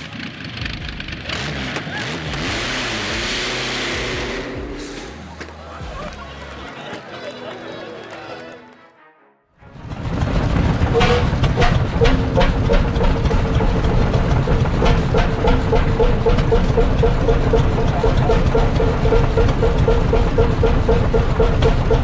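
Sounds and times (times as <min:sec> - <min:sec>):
large engine rumbling: 0:00.0 - 0:08.8, 0:09.6 - 0:22.0
sharp clacks: 0:10.1 - 0:22.0.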